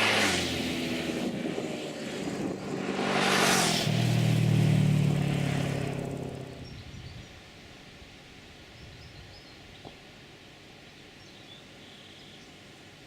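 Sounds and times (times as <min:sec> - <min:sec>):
engine hum: 0:00.0 - 0:07.4
vehicles passing by: 0:00.0 - 0:07.4.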